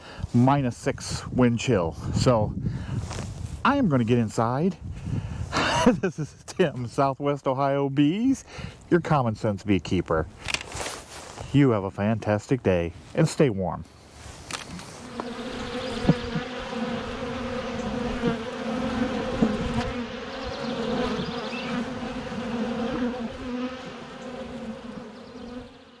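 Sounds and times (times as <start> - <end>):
bees buzzing: 14.6 - 26.0.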